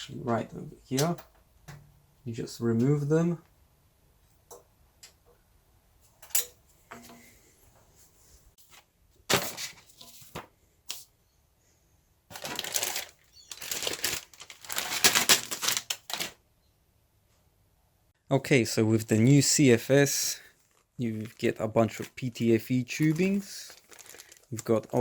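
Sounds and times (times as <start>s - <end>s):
plastic packaging rustling: 12.3s - 16.4s, 20.3s - 25.0s.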